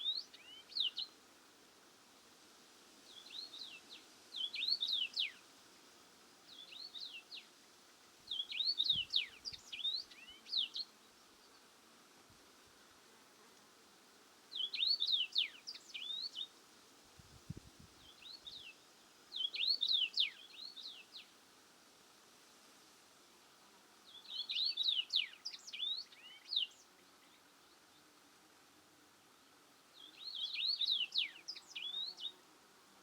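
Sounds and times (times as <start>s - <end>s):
faint steady hiss: 0.0s - 33.0s
songbird chirps and whistles: 3.1s - 5.4s, 8.3s - 10.9s, 14.5s - 16.5s, 18.0s - 21.3s, 24.1s - 27.4s, 30.0s - 32.4s.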